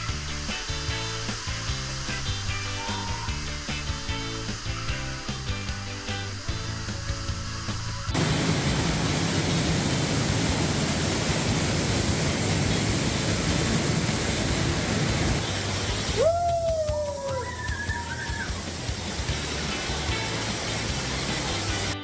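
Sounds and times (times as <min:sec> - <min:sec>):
music: 0:00.0 - 0:10.5, 0:14.6 - 0:22.0
waterfall rushing: 0:08.2 - 0:22.0.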